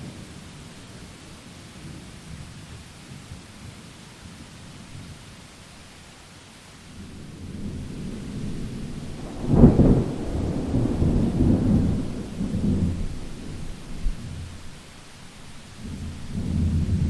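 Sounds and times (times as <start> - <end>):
steady rain: 0.0 - 17.0
thunder rumbling: 7.1 - 17.0.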